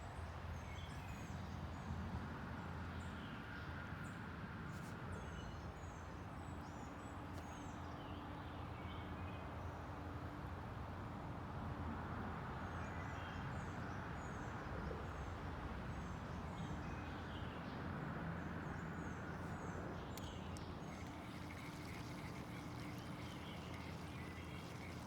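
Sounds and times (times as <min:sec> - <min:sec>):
faint low hum: 0:19.4 - 0:25.0
bird chirping: 0:20.2 - 0:25.0.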